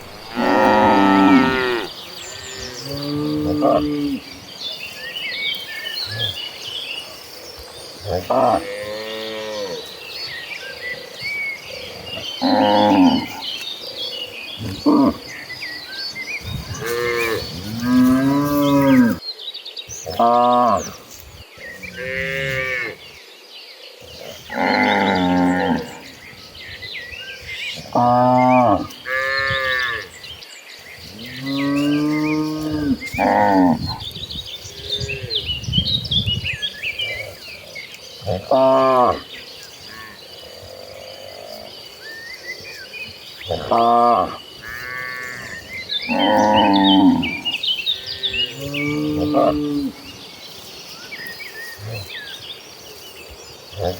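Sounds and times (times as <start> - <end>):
small birds chirping: 0.0 - 53.9
cattle mooing: 0.1 - 4.3, 11.9 - 13.4, 43.5 - 50.0.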